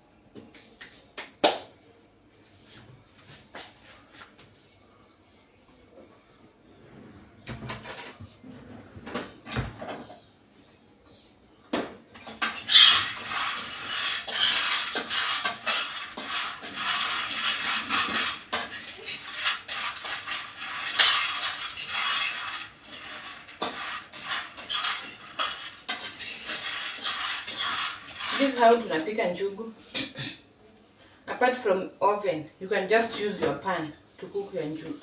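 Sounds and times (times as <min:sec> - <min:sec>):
nuts rattling in a pan: 0:12.2 - 0:29.1.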